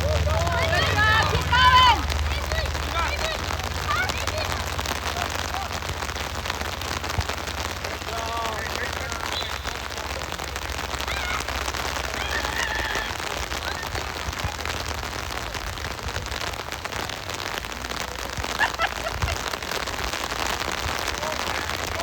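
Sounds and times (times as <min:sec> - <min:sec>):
distant children shouting: 0:00.0 - 0:05.8, 0:10.8 - 0:14.4
heavy rain falling: 0:00.0 - 0:22.0.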